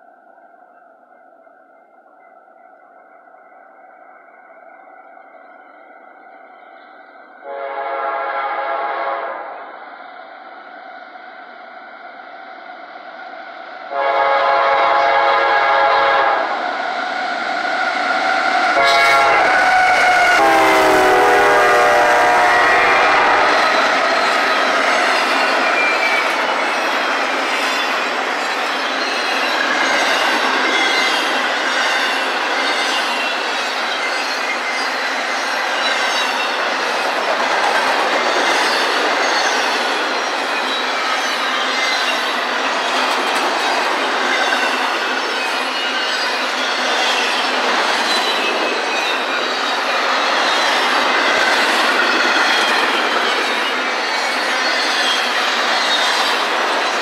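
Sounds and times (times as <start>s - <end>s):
train air horn blasts: 7.4s - 9.6s, 13.9s - 16.6s, 18.8s - 23.9s.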